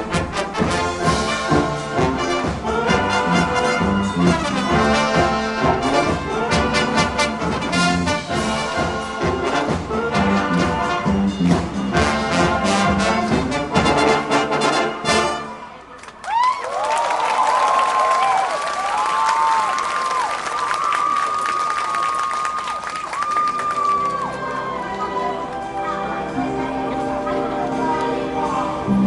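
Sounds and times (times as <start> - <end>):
marching drums: 0.0 - 14.8
brass playing a tune: 0.0 - 15.9.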